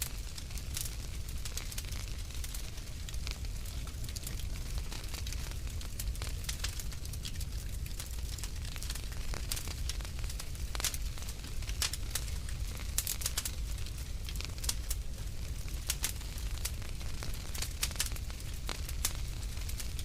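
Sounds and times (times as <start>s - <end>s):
burning logs crackling and popping: 0.0s - 20.0s
low rumble of flames: 0.0s - 20.0s.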